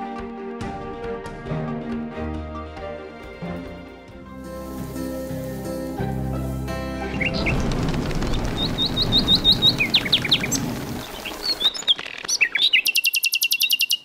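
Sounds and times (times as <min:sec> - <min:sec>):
songbirds chirping: 0:04.6 - 0:14.0
rapid bird trill: 0:07.1 - 0:14.0.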